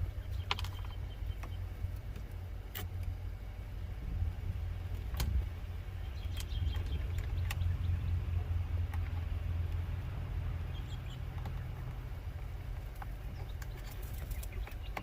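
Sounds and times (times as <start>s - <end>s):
truck engine idling: 0.0s - 15.0s
sharp clicks and knocks: 4.9s - 5.5s, 8.8s - 9.9s.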